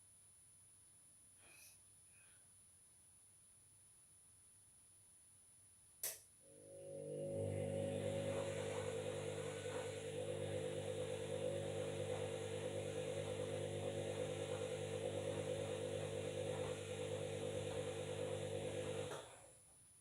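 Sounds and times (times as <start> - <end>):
washing machine motor humming: 6.5 - 19.5.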